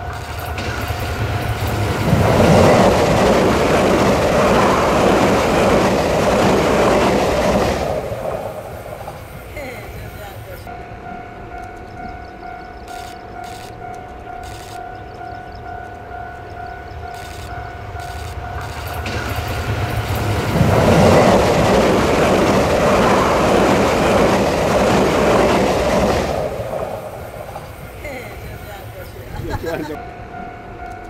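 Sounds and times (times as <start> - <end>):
train rushing past: 0.0 - 31.0
level crossing warning tone: 10.0 - 25.8.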